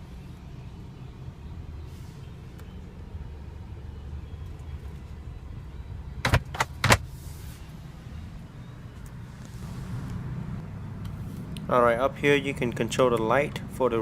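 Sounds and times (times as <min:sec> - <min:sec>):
low cabin hum: 0:00.0 - 0:11.3
glove box lid clicking shut: 0:06.2 - 0:07.0.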